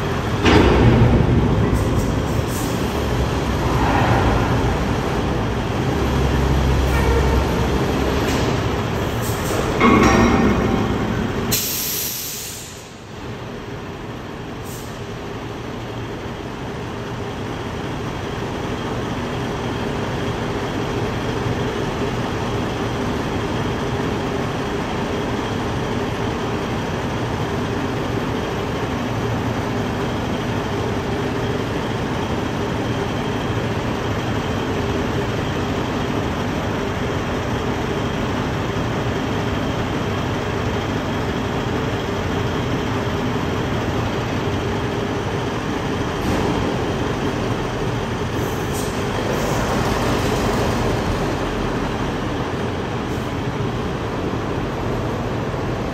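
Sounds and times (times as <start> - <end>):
garbage truck diesel engine running: 0.0 - 55.9
brief high hiss: 11.5 - 13.0.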